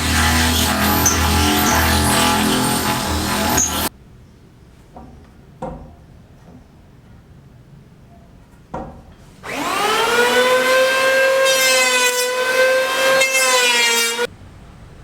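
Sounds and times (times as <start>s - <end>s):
electric power tool motor whining: 0.0s - 3.9s, 9.4s - 14.3s.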